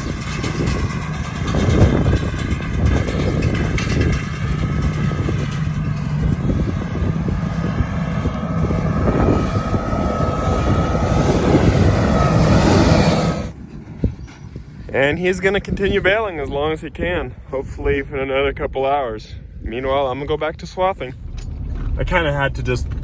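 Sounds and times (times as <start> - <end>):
farm machinery engine running: 0.0 - 17.2
faint whine: 0.0 - 18.4.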